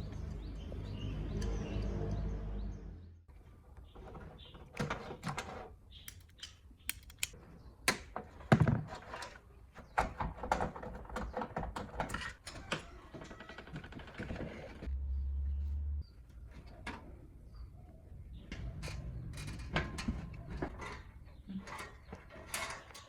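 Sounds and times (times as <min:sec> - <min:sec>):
hard parts clicking and scraping: 0:03.9 - 0:08.2, 0:18.8 - 0:23.0.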